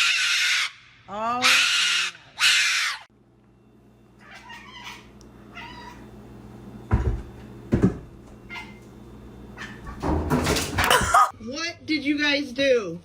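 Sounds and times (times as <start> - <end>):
cat meowing: 4.2 - 6.0.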